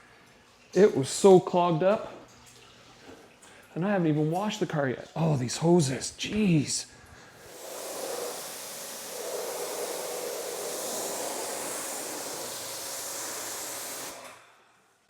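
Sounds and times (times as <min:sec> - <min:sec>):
water spray hissing: 0:07.4 - 0:14.2.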